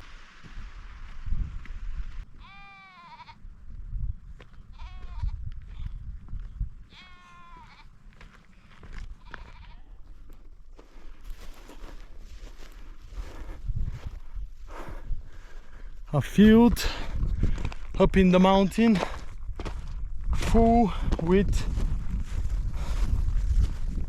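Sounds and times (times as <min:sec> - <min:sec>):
sheep bleating: 0:02.4 - 0:03.4, 0:04.7 - 0:06.0, 0:06.9 - 0:07.9, 0:09.2 - 0:10.0.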